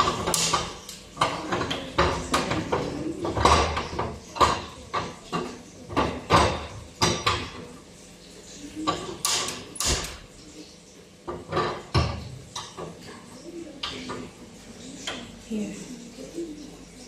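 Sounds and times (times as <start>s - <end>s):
cookware knocks and scrapes: 0.0s - 7.7s, 11.3s - 13.2s.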